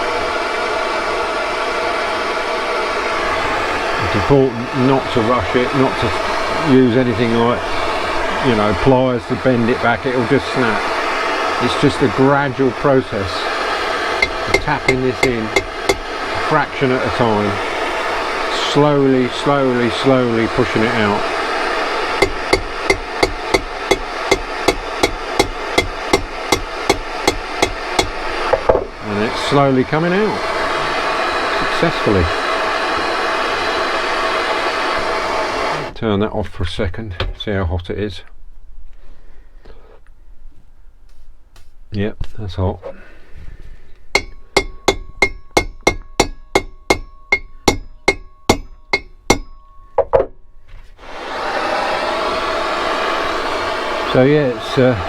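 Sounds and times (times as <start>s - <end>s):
rushing blower noise: 0.0s - 36.0s, 51.0s - 55.0s.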